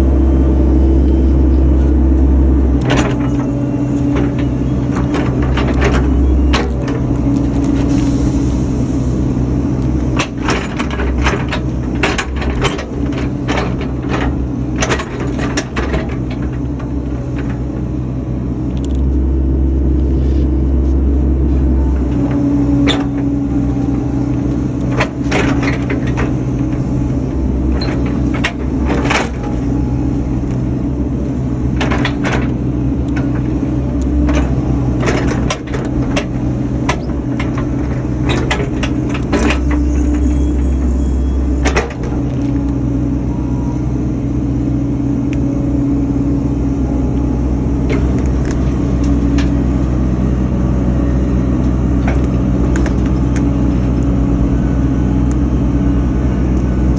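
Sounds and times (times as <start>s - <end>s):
excavator diesel engine running: 0.0s - 56.9s.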